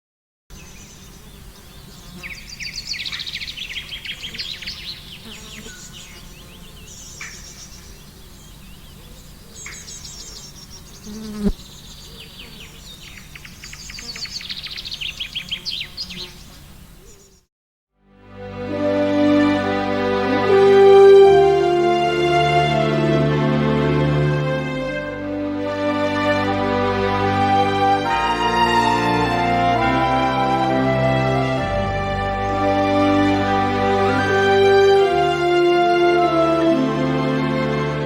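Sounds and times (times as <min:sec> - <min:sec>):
small birds chirping: 0:00.5 - 0:17.5.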